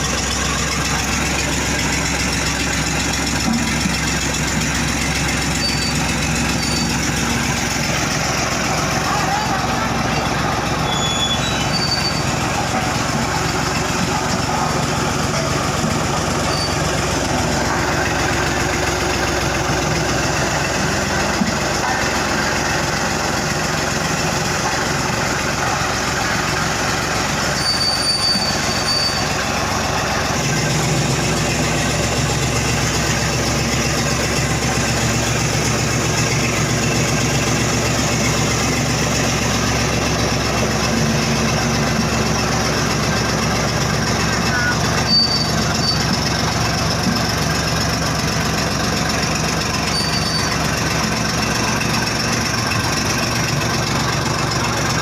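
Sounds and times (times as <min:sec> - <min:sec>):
metallic squealing and rattling: 0:00.0 - 0:20.0, 0:27.2 - 0:41.6, 0:42.2 - 0:46.9, 0:49.5 - 0:51.2
diesel machinery running: 0:00.0 - 0:55.0.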